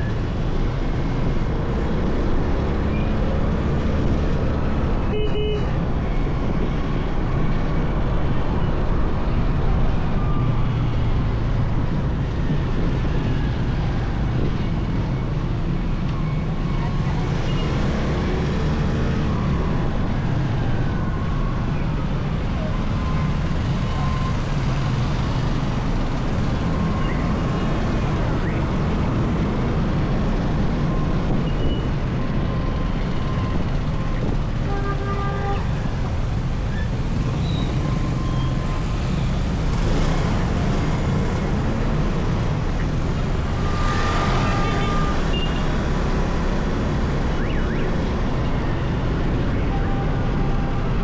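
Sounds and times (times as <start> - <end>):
motorcycle engine and road noise: 0.0 - 51.0
motorcycle engine drone: 35.9 - 47.6.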